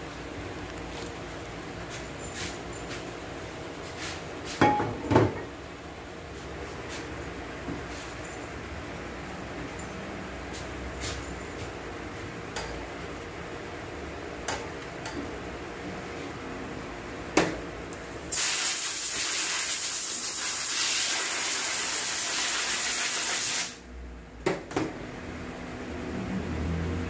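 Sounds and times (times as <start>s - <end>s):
loud pressurised hiss: 18.3s - 23.8s.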